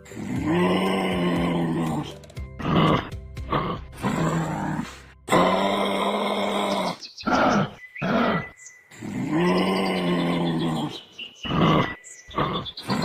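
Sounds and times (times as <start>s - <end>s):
animal low drawn-out calls: 6.8s - 13.0s.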